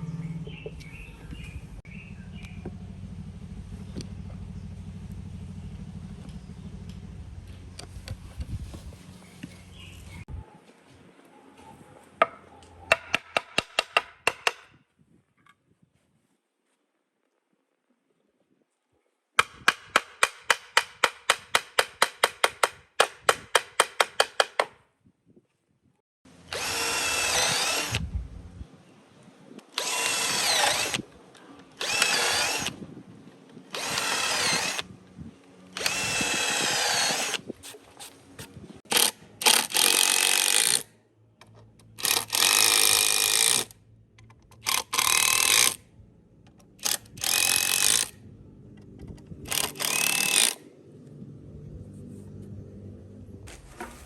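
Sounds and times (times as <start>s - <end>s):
power tool running in bursts: 26.4s - 28.0s, 29.8s - 31.0s, 31.8s - 32.8s, 33.7s - 34.9s, 35.7s - 37.4s, 49.5s - 50.6s.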